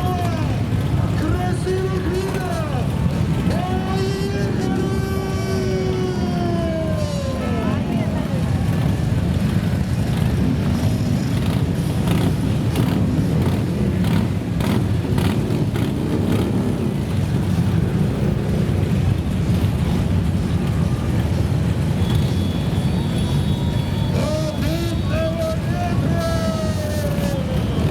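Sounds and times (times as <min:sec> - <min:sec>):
motorcycle engines rumbling: 0:00.0 - 0:27.9
motorcycle engine revs: 0:08.3 - 0:24.6.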